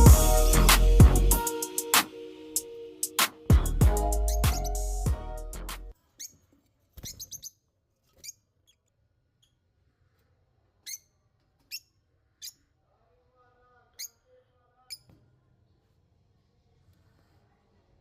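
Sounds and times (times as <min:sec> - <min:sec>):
small birds chirping: 0:03.6 - 0:05.0, 0:06.2 - 0:08.8.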